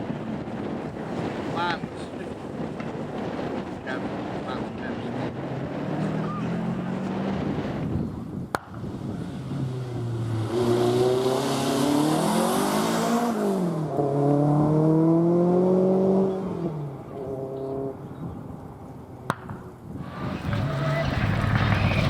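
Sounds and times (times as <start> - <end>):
rally car engine accelerating: 4.9 - 8.0, 8.8 - 18.1, 20.1 - 22.0.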